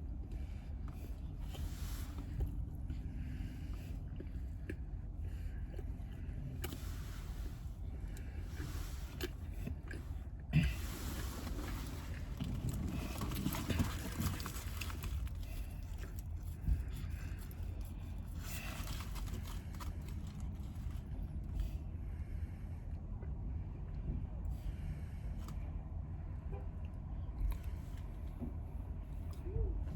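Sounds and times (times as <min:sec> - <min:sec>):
rustling inside a car: 0:00.0 - 0:22.8
steady low rumble: 0:00.0 - 0:29.9.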